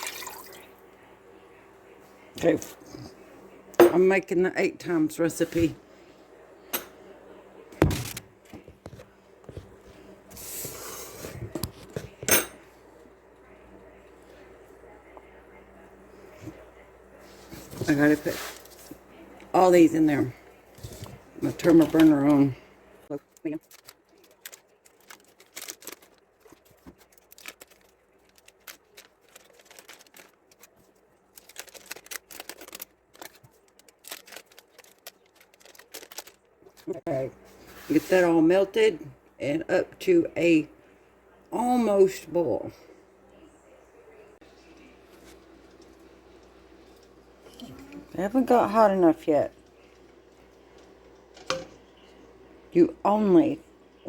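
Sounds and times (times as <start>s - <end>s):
cookware and utensils knocking: 12.2s - 12.7s, 51.4s - 51.8s
paper crinkling and tearing: 23.2s - 37.0s.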